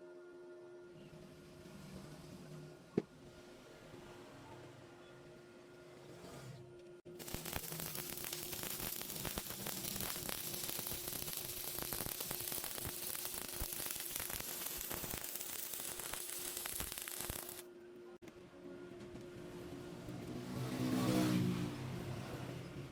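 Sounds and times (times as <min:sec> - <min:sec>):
arc welding crackling hiss: 0:07.1 - 0:17.7.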